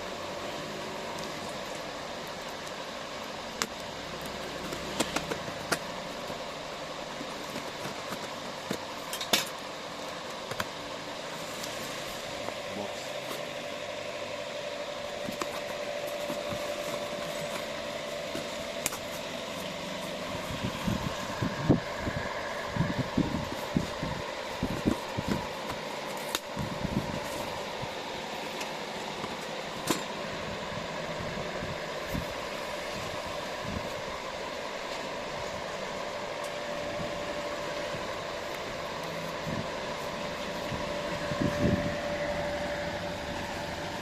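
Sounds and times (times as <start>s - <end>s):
steady mechanical hum: 0.0s - 44.0s.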